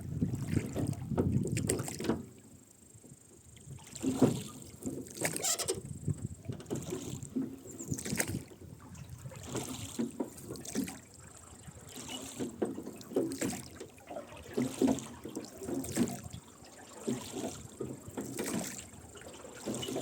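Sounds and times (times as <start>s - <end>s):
oars splashing in water: 0.0s - 20.0s
oarlocks creaking: 5.4s - 5.9s.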